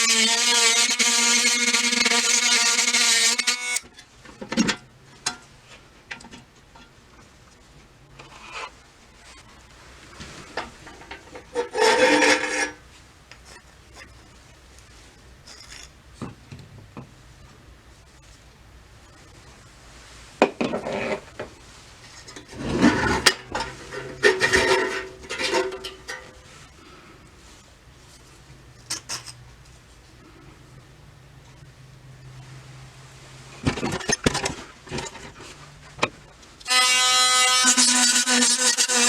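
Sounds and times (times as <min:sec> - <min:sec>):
power tool whine: 0:00.0 - 0:03.8, 0:36.6 - 0:39.0
rasping: 0:36.7 - 0:39.0.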